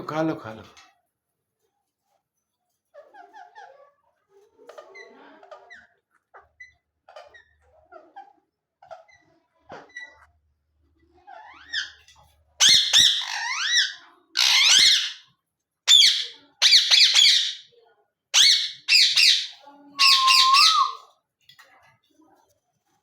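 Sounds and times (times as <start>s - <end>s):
parrots squawking: 11.2s - 15.3s, 15.9s - 21.1s.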